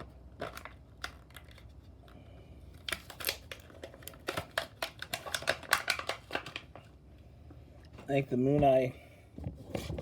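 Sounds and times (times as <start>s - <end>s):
plastic packaging clicks and crinkles: 0.0s - 6.9s.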